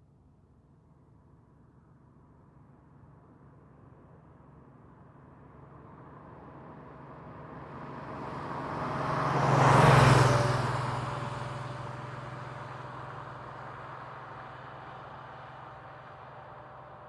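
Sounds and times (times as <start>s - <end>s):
car engine passing by: 7.8s - 17.0s.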